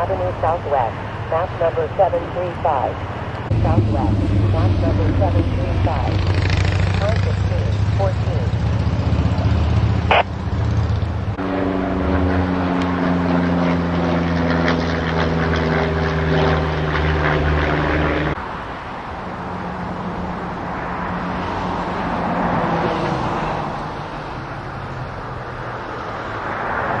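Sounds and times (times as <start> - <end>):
engine running steadily: 0.0 - 18.4
rushing outdoor noise: 0.0 - 27.0.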